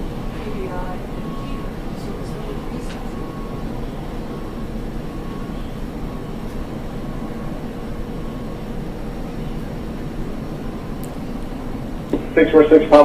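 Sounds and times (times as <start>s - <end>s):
faint steady whine: 0.0s - 13.0s
jet engines rumbling: 0.0s - 13.0s.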